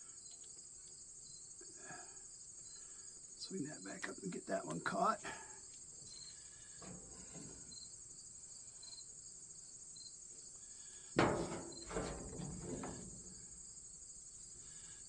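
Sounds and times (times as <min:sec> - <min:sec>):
crickets chirping: 0:00.0 - 0:15.0
metal chain clanking: 0:11.2 - 0:13.8.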